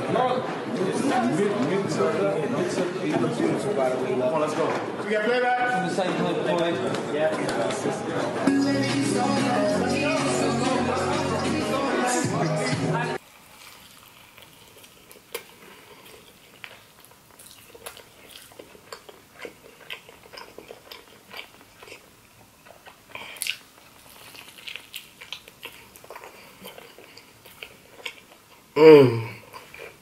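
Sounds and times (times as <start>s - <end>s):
chewing and biting: 13.6s - 28.7s.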